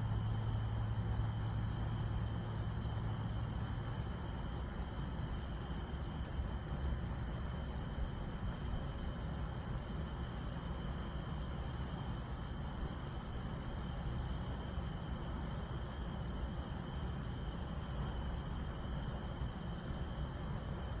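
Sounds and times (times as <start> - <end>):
low steady rumble: 0.0 - 9.1
crickets trilling: 0.0 - 21.0.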